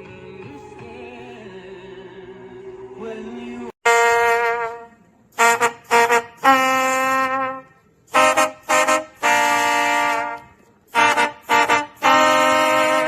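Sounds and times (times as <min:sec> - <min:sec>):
brass instrument music: 0:03.8 - 0:13.0.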